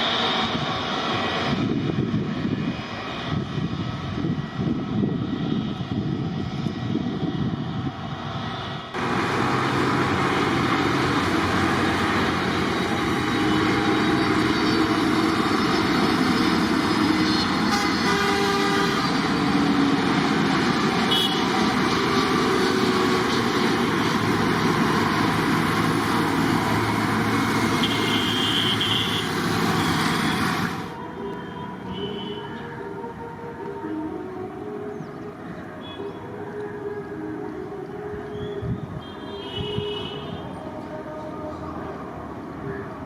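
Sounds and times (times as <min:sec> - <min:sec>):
jet engines roaring: 0:00.0 - 0:32.0.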